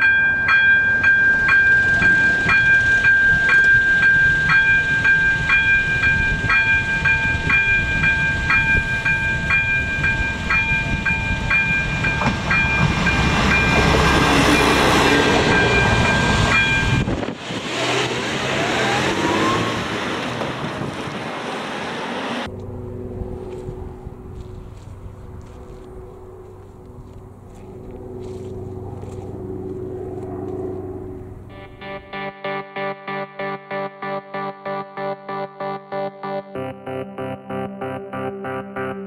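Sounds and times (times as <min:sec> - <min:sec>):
level crossing bell ringing: 0:00.0 - 0:17.1
train engine and wheels rumbling: 0:00.0 - 0:32.9.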